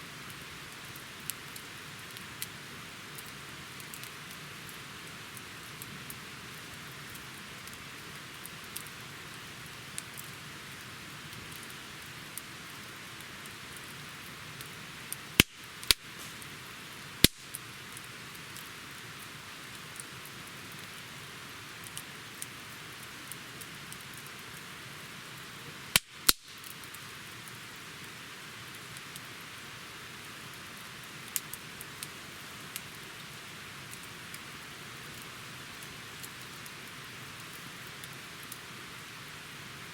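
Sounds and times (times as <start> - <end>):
campfire hiss and crackles: 0.0 - 39.9
burning wood popping loudly: 15.1 - 18.1, 25.9 - 27.0.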